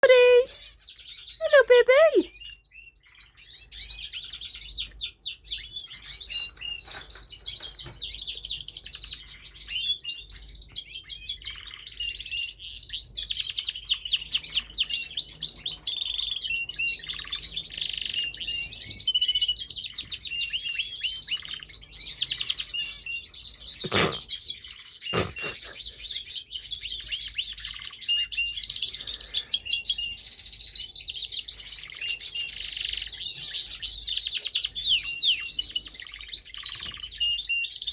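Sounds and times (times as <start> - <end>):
canary singing: 0.0 - 4.6, 20.0 - 26.1.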